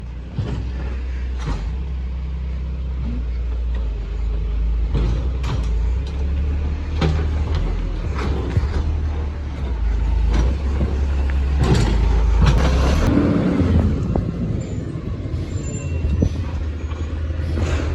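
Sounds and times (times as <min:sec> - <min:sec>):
truck engine running: 0:00.0 - 0:17.9.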